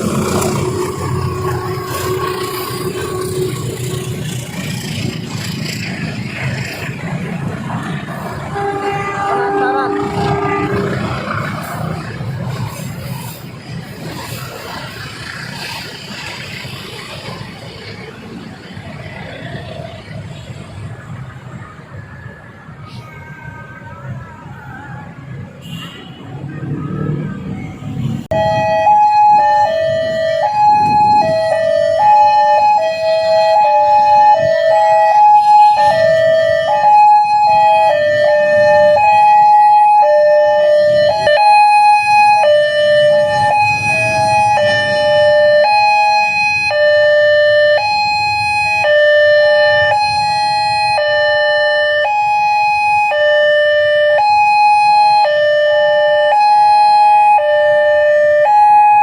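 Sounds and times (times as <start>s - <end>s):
traffic rumble: 0.0s - 59.0s
level crossing alarm: 28.3s - 59.0s.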